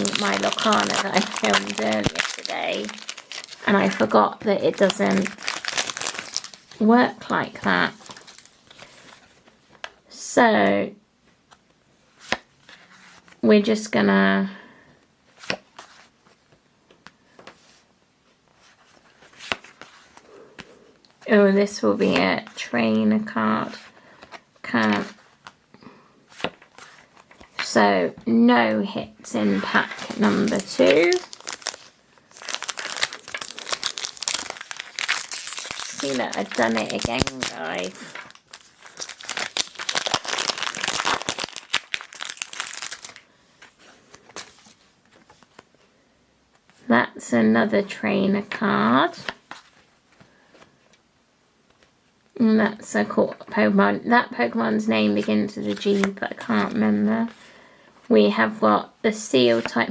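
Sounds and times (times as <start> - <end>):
foil wrapper crinkling and tearing: 0.0 - 6.8, 7.9 - 9.1, 29.8 - 43.3
trading cards rustling: 0.0 - 9.6, 29.3 - 45.7.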